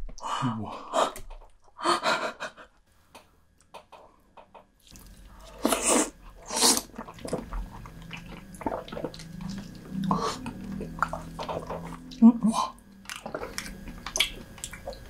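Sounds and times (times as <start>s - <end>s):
wet mouth clicks eating: 13.0s - 15.0s.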